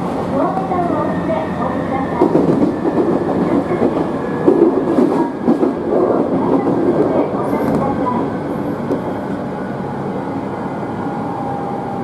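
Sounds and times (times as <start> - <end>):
train rolling rumble: 0.0 - 12.0.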